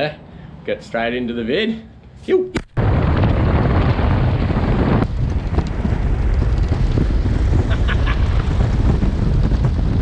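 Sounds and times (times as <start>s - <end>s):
wind buffeting microphone: 2.8s - 10.0s.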